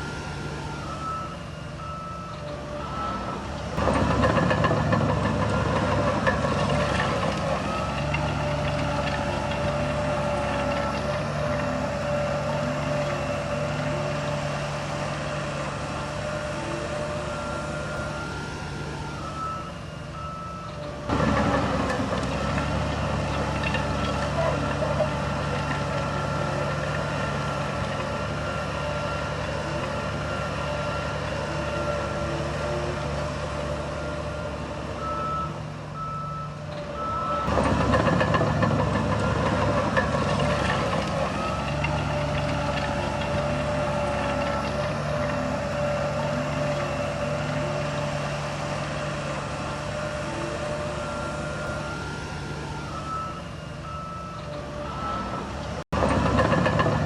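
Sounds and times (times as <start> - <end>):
heavy construction machinery running: 0.0 - 57.0
reversing alarm beeping: 0.7 - 7.0, 16.0 - 21.2, 33.7 - 55.5.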